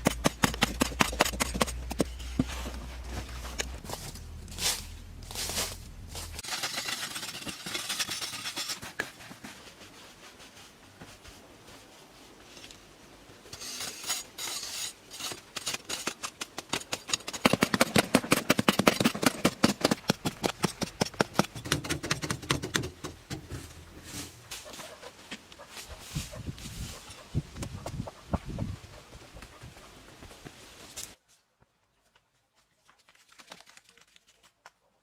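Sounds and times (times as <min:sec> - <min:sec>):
rapid scraping strokes: 0:04.5 - 0:10.8.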